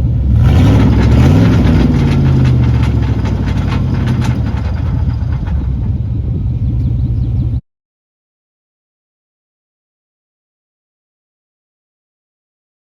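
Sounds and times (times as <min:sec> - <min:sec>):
truck engine revving: 0:00.2 - 0:07.0.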